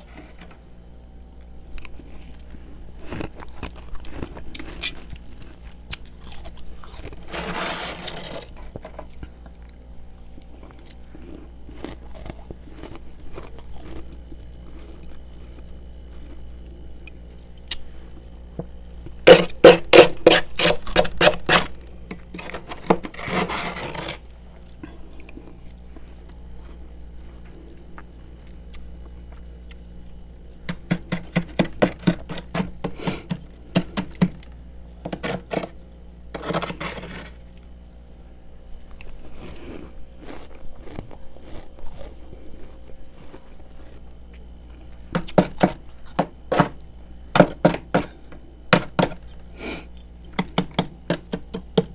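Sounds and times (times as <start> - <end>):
frost scraped from freezer: 0.0 - 0.6, 7.1 - 9.1, 19.3 - 21.7, 22.3 - 24.3, 30.7 - 34.4, 35.1 - 37.4.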